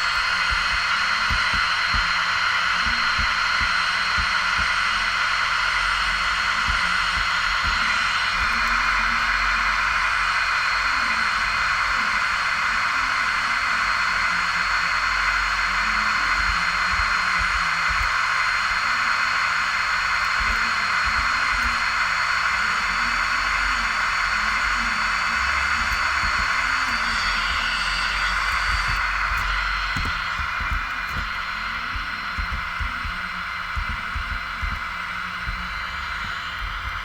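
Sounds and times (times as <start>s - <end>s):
low thumps: 0.0s - 9.4s, 24.7s - 37.0s
jet engine rushing with whine: 0.0s - 37.0s.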